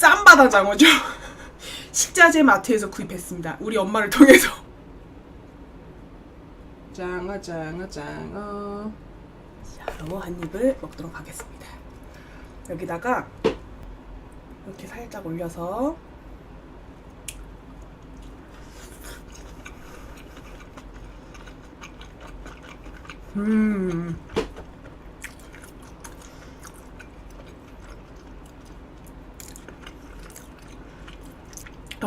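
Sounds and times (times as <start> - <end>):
person chewing food: 17.3 - 32.0
person humming mm: 23.3 - 24.3.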